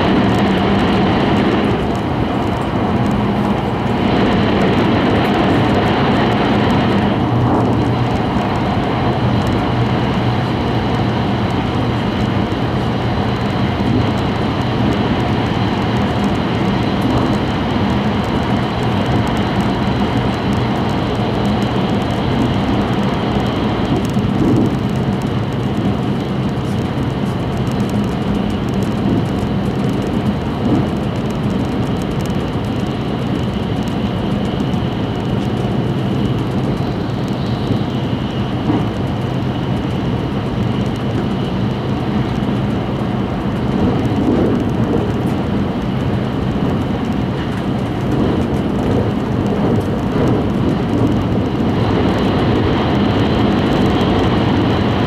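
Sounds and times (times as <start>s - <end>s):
train cabin rumble: 0.0s - 55.0s.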